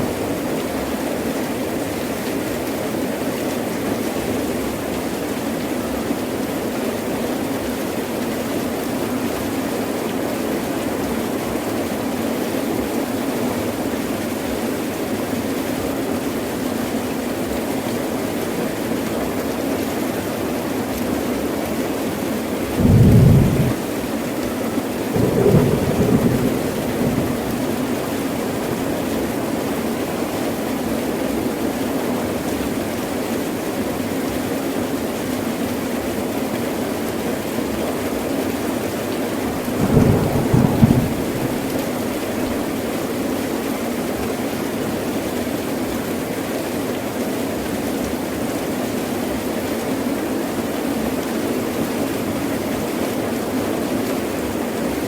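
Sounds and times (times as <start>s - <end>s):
heavy rain pouring: 0.0s - 55.0s
thunder: 22.8s - 23.9s, 25.2s - 29.1s, 39.7s - 42.6s.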